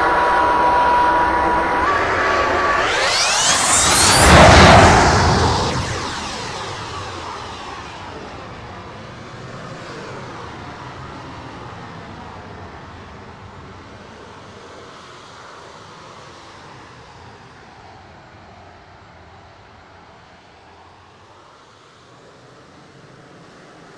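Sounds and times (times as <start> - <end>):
jet rushing noise: 0.0 - 10.3
model jet engine whine: 0.0 - 23.9.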